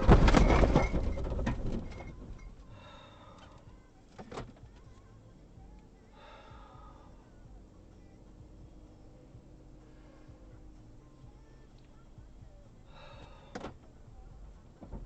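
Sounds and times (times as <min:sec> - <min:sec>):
car crash: 0:00.0 - 0:02.6
debris clattering: 0:00.0 - 0:02.7.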